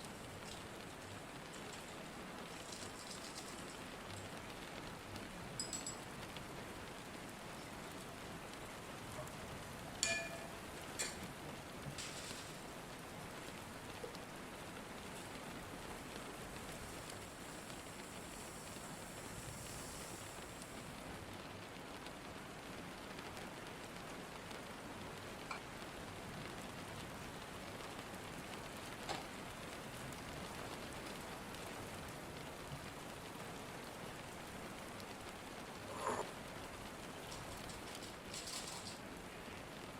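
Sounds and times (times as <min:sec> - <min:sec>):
steady rain falling: 0:00.0 - 0:39.9
light clinks: 0:01.5 - 0:04.4, 0:05.6 - 0:06.2, 0:10.0 - 0:11.2, 0:37.3 - 0:39.0.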